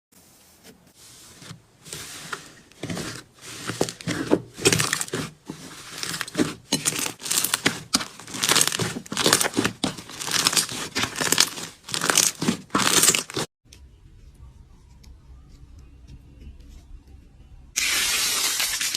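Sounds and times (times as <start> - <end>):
slime squishing and crackling: 1.4 - 13.5.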